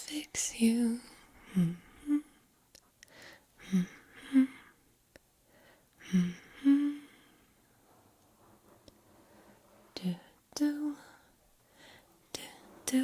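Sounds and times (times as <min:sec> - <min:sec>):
breathy hummed singing: 0:00.1 - 0:05.2, 0:05.9 - 0:07.6.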